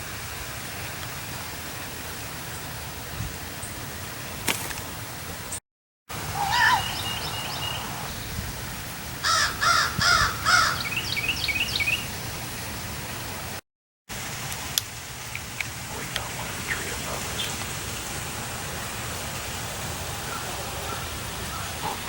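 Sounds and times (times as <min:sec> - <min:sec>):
birds chirping: 0:06.4 - 0:08.4, 0:09.2 - 0:12.2, 0:15.3 - 0:18.2, 0:19.2 - 0:22.0
harsh caw-like bird calls: 0:09.2 - 0:11.0, 0:20.2 - 0:22.0
steady hiss: 0:14.1 - 0:22.0.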